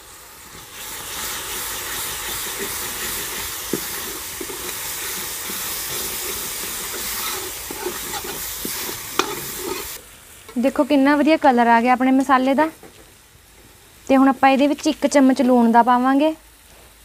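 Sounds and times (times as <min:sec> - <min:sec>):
paste sizzling in hot oil: 0:00.0 - 0:12.8.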